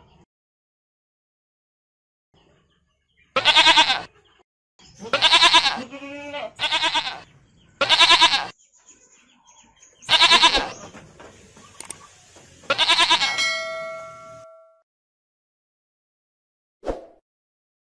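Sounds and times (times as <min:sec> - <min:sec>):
goat bleating: 0:03.4 - 0:04.1, 0:05.0 - 0:08.5, 0:10.0 - 0:10.9, 0:12.7 - 0:13.4
bell-like ringing tone: 0:13.2 - 0:14.8.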